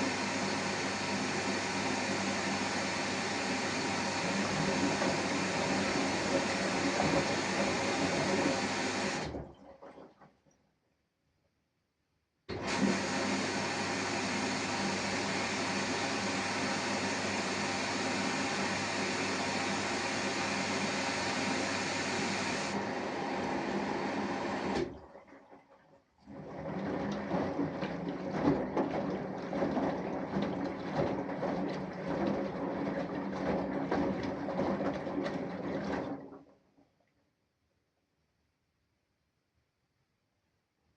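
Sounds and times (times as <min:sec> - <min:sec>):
washing machine humming: 0:00.0 - 0:10.0, 0:12.5 - 0:25.3, 0:26.3 - 0:36.5
water and laundry sloshing: 0:03.3 - 0:10.5, 0:12.5 - 0:36.6.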